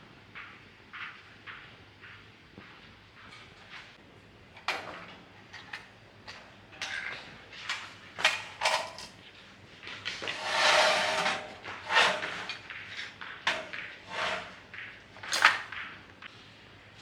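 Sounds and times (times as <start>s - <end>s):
scraping: 10.2s - 12.8s, 13.5s - 14.7s.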